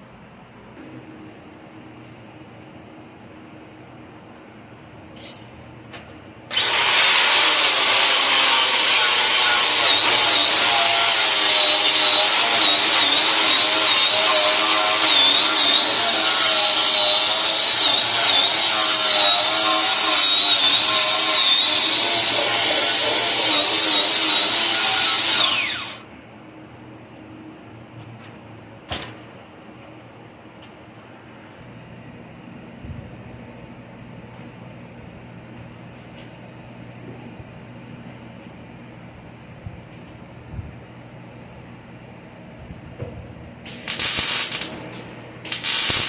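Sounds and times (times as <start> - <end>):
power grinder grinding steel: 6.5 - 26.0, 43.7 - 44.8, 45.5 - 46.0.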